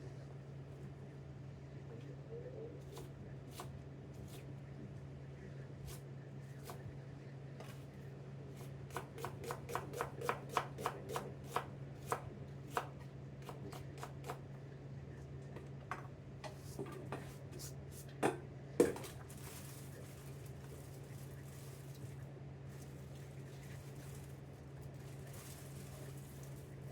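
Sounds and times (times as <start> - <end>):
steady low hum: 0.0 - 26.9
knife slicing onion on board: 8.9 - 14.4.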